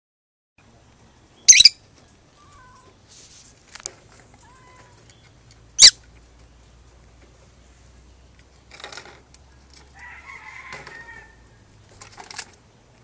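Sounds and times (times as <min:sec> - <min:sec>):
bird shrieking: 0:01.5 - 0:01.8
soft bird whistles: 0:01.5 - 0:01.8.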